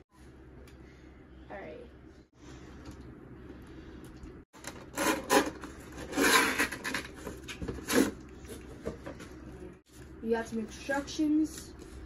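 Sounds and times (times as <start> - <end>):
cardboard rubbing and scraping: 5.0 - 8.2.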